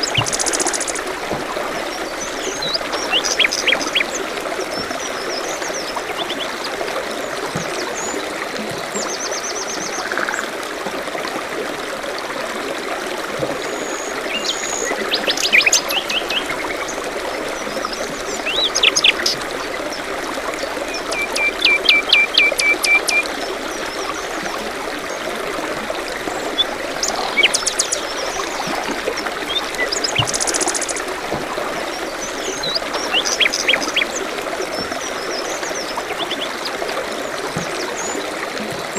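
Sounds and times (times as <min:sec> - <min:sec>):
small birds calling and singing: 0:00.0 - 0:01.1, 0:01.8 - 0:06.8, 0:13.7 - 0:25.2, 0:26.2 - 0:31.2, 0:31.8 - 0:36.8
stream trickling and splashing: 0:00.0 - 0:38.9.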